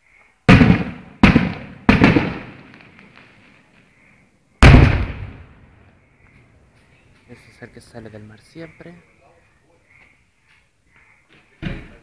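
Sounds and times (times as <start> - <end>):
fireworks bangs with echoing rumble: 0.5 - 3.3, 4.6 - 5.8.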